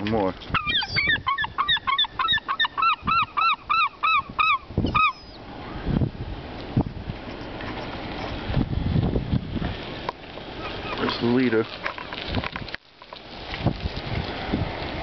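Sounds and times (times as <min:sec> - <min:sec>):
gull calling: 0:00.5 - 0:05.9, 0:10.6 - 0:11.2.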